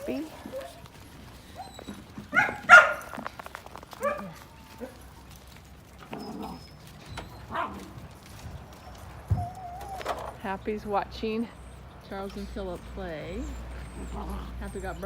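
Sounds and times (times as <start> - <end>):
puppy yelping: 0.0 - 5.4, 6.0 - 10.4, 13.3 - 15.0
puppies yipping and whimpering: 0.0 - 10.4, 12.6 - 15.0.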